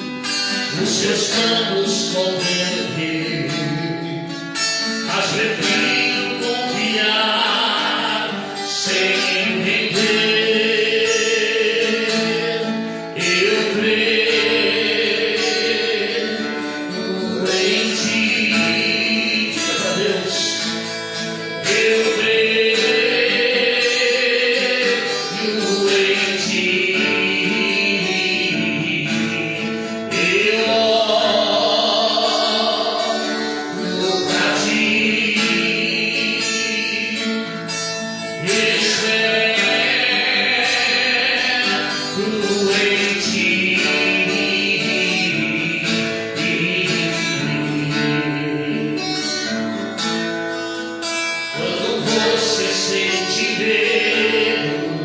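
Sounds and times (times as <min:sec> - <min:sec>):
person singing gospel song: 0:00.0 - 0:04.4, 0:05.0 - 0:50.0, 0:51.5 - 0:55.0
plucked guitar: 0:00.0 - 0:55.0.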